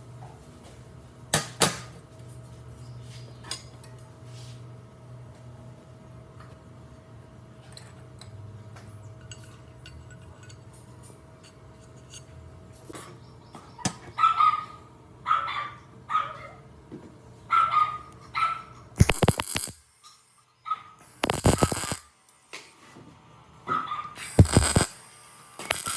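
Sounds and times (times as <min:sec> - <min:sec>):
dog barking: 0:14.2 - 0:16.6, 0:17.5 - 0:18.7, 0:20.7 - 0:21.0, 0:23.7 - 0:24.2.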